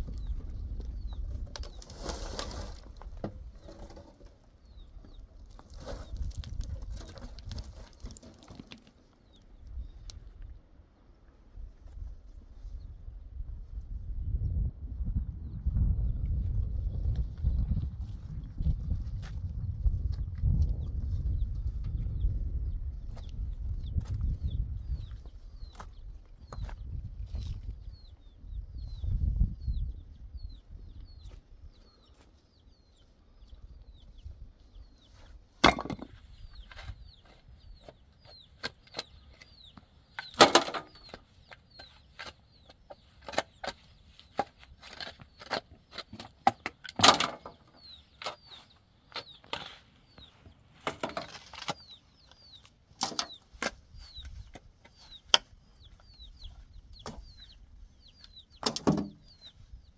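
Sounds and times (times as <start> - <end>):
chicks peeping: 20.8 - 35.4, 36.2 - 46.7, 47.6 - 59.9
sharp knocks and cracks: 35.6 - 36.2, 40.2 - 41.2.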